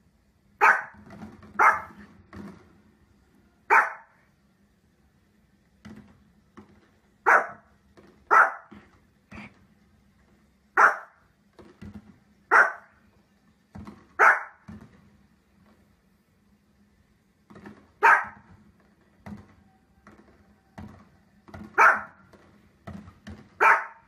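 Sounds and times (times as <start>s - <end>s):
small dog barking: 0.6s - 1.0s, 1.6s - 2.0s, 3.7s - 4.2s, 7.2s - 7.7s, 8.3s - 8.8s, 10.8s - 11.2s, 12.5s - 13.0s, 14.2s - 14.6s, 18.0s - 18.5s, 21.8s - 22.2s, 23.6s - 24.0s.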